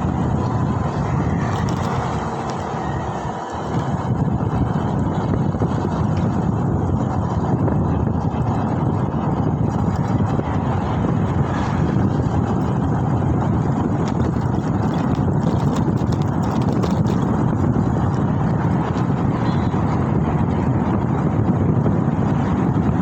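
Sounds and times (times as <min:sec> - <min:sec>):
road and traffic noise: 0:00.0 - 0:23.0
wind rushing over microphone: 0:00.0 - 0:23.0.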